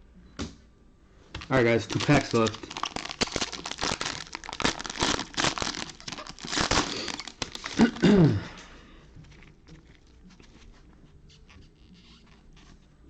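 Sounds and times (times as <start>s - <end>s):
plastic wrapper tearing and crinkling: 1.4s - 8.1s.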